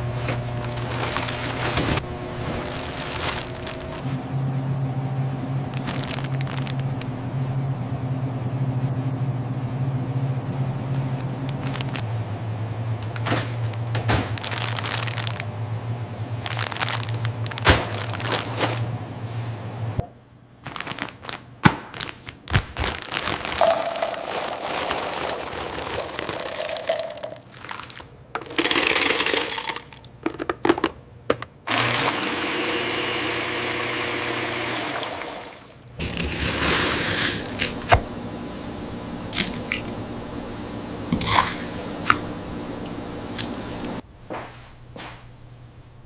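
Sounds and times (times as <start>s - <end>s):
machine hum: 0.0s - 20.1s.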